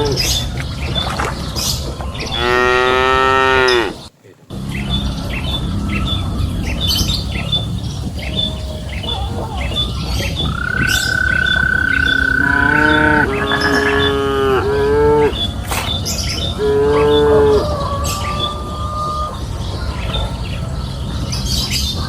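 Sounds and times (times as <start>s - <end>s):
faint regular chirping: 0.2s - 18.6s
cattle mooing: 2.2s - 4.1s, 10.5s - 15.6s, 16.4s - 18.8s.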